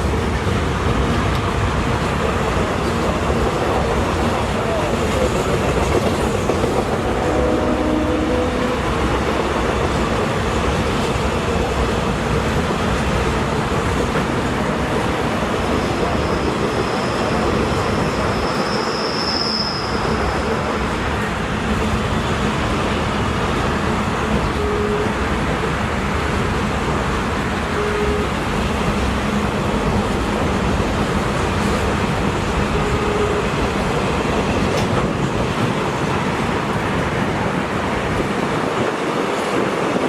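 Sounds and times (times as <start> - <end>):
train wheels rumbling on track: 0.0 - 40.0
high wheel squeal: 15.5 - 20.8.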